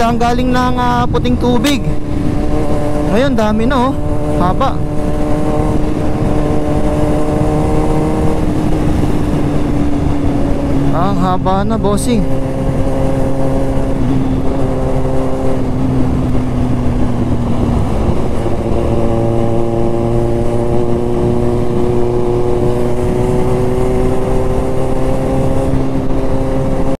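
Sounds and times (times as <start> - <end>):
motorcycle engine running: 0.0 - 27.0
road noise rushing: 0.0 - 27.0.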